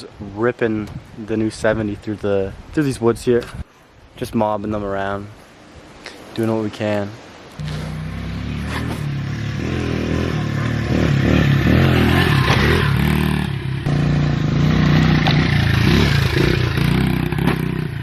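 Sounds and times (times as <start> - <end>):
small motorbike engine revving: 7.6 - 18.0.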